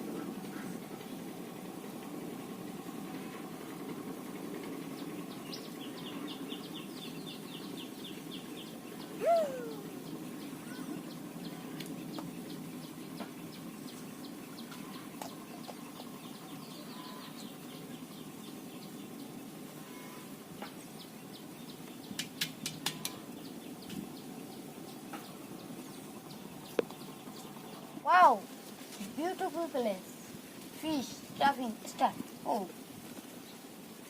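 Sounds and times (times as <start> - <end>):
low background rumble: 0.0 - 34.0
bird trills of high ticks: 21.8 - 24.0.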